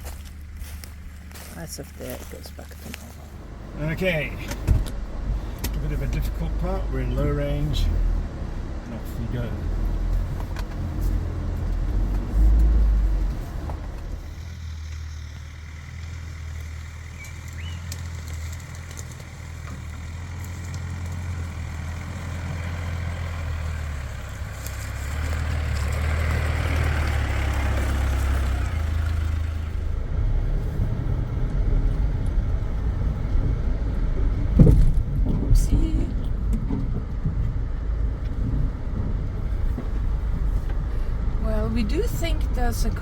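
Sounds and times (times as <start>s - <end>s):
low engine drone: 0.0s - 20.0s, 23.3s - 43.0s
heavy bump: 3.6s - 6.8s, 29.1s - 43.0s.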